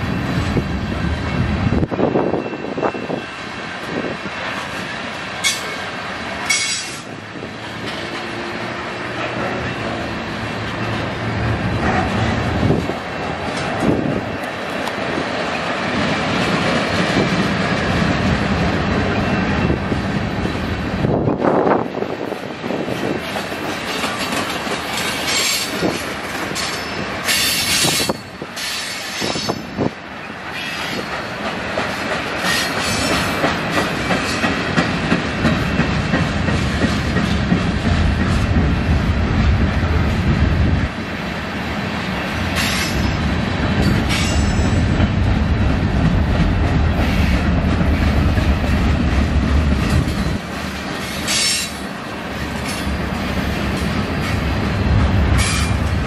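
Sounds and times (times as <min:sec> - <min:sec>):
low train rumble: 0:00.0 - 0:56.0
train wheels clacking over joints: 0:22.8 - 0:29.7, 0:30.4 - 0:38.8, 0:43.8 - 0:56.0.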